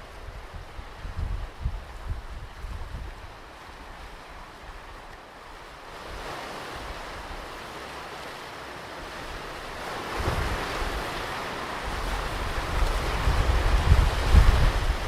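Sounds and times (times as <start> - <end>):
wind buffeting microphone: 0.0 - 7.5, 9.1 - 15.0
ocean surf on beach: 0.0 - 15.0
wave breaking: 9.1 - 15.0.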